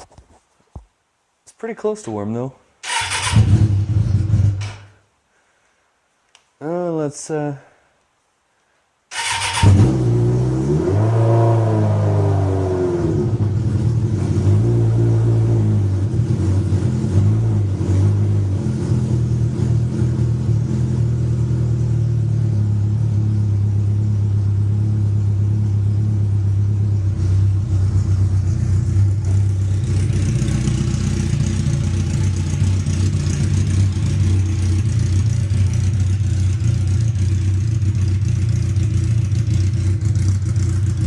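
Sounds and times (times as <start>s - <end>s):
loud motorcycle engine running: 18.6s - 41.0s.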